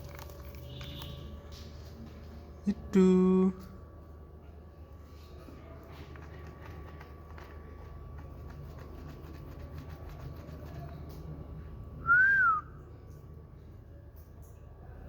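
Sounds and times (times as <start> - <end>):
short clear whistle: 12.1 - 12.7.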